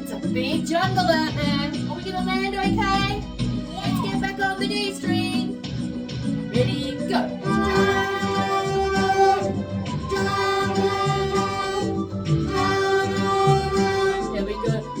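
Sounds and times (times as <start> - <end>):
violins playing long notes: 7.4 - 14.8.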